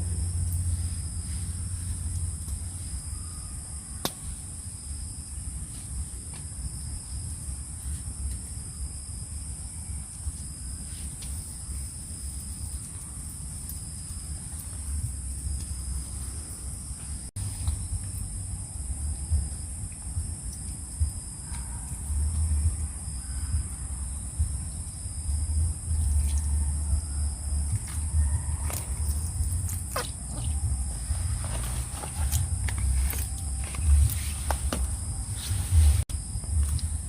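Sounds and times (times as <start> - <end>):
low rumble: 0.0 - 3.7, 14.8 - 37.0
crickets chirping: 0.0 - 37.0.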